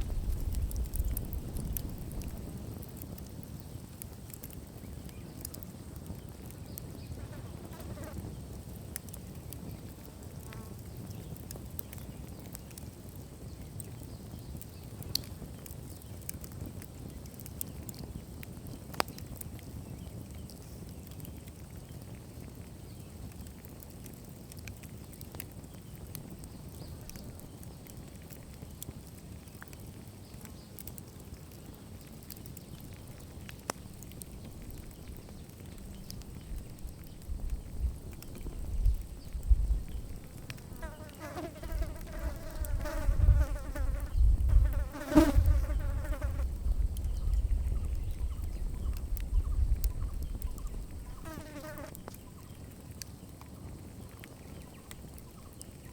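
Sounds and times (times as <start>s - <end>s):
campfire crackles: 0.0s - 55.9s
flying insect buzzing: 40.8s - 46.4s, 51.2s - 52.0s.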